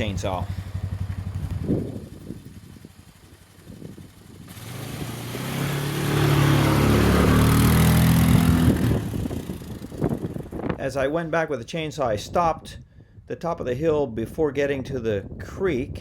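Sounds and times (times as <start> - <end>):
vehicle engine accelerating: 0.0 - 10.8
road and wind noise: 0.0 - 16.0.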